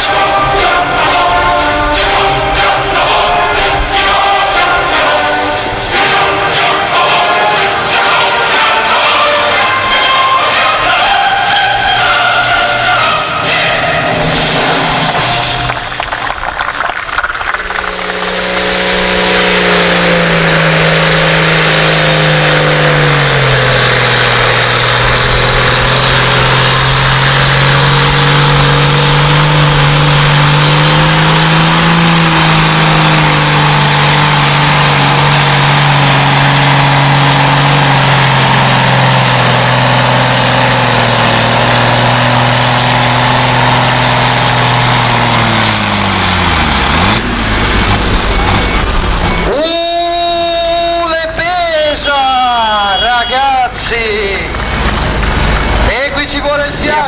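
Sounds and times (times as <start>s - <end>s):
tractor engine under load: 0.0s - 57.0s.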